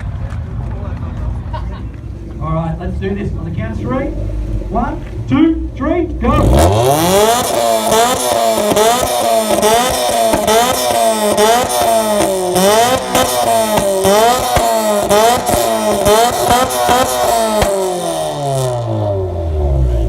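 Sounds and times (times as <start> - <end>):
car engine revving: 2.1 - 20.0
exhaust pops: 6.1 - 19.2.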